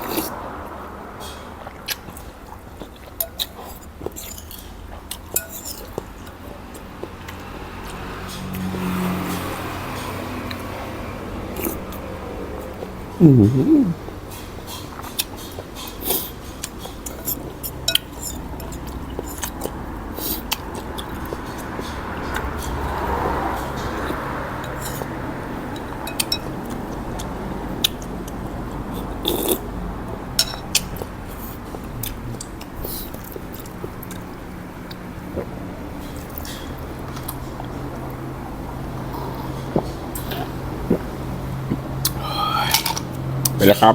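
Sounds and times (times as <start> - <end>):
wet chewing and mouth sounds: 0.0 - 12.0, 12.6 - 43.6
utensils clinking against bowl: 3.0 - 6.0, 14.7 - 19.6.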